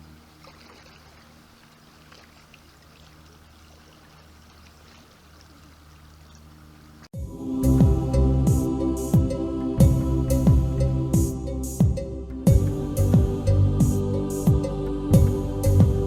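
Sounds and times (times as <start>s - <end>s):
flowing river water: 0.0s - 7.1s
gentle instrumental music: 7.2s - 16.0s.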